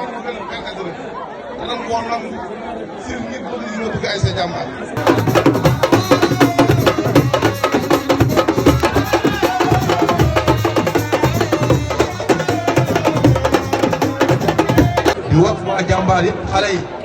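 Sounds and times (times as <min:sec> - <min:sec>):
music with fast dense drumming: 0:05.0 - 0:15.2.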